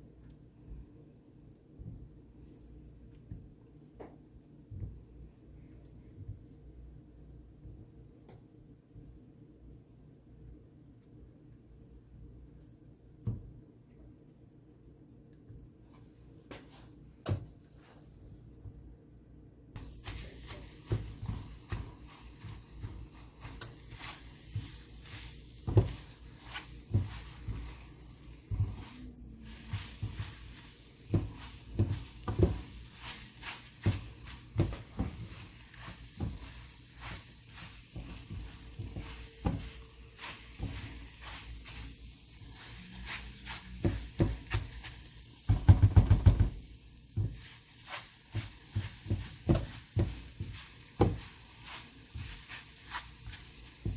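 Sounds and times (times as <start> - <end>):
faint sizzle: 19.7 - 53.9
spatula scraping eggs in a pan: 19.8 - 53.9
spatula knocking against pan: 45.5 - 46.6.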